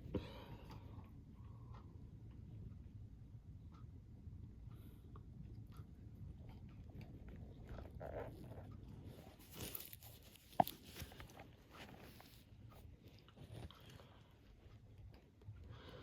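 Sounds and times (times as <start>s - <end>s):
stomach rumble: 5.4s - 16.0s
crunchy snack being chewed: 6.3s - 12.4s.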